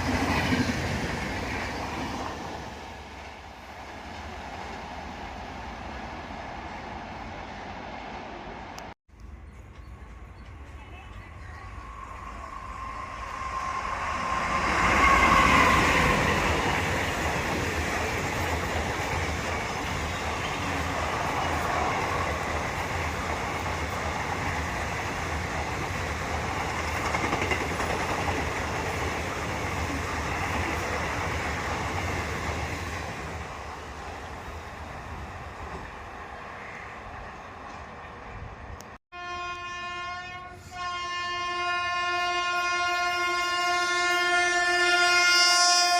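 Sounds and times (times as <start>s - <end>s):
train passing at high speed: 0.0s - 45.9s
train horn: 39.1s - 45.9s.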